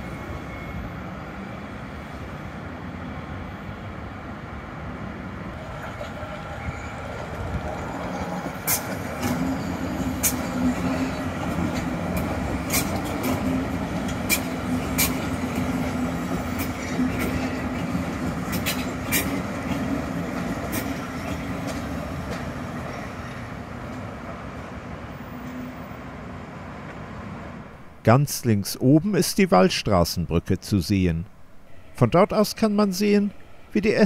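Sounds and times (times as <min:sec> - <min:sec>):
electric train humming: 0:00.0 - 0:28.0
train wheels clacking on rail joints: 0:07.2 - 0:24.1.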